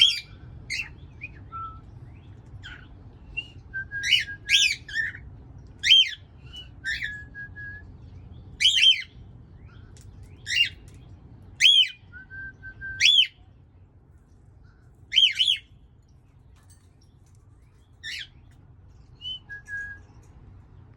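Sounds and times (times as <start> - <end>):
birds calling: 0.0 - 12.1, 13.0 - 20.9
low steady hum: 0.0 - 20.9
brief level whistles: 19.2 - 20.2.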